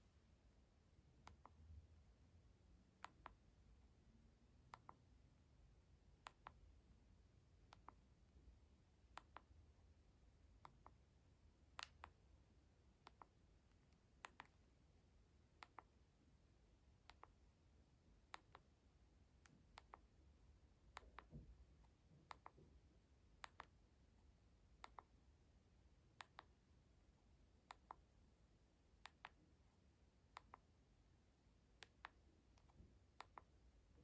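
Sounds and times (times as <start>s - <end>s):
quiet sharp clicks: 11.7s - 12.2s, 13.0s - 14.6s, 19.4s - 20.1s, 23.4s - 23.8s, 24.8s - 25.2s, 26.2s - 26.6s, 29.0s - 29.4s, 30.3s - 30.7s, 31.8s - 33.6s.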